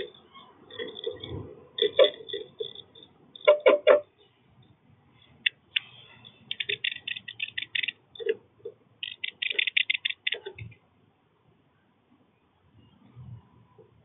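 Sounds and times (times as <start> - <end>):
birds ticking sharply: 0.0 - 8.4, 9.0 - 10.7.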